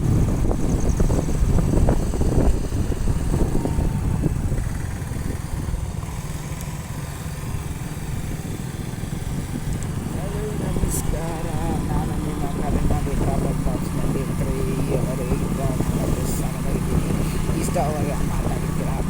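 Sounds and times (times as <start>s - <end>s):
wind on microphone: 0.0s - 6.0s, 7.4s - 19.0s
motorcycle engine rumble: 0.0s - 19.0s.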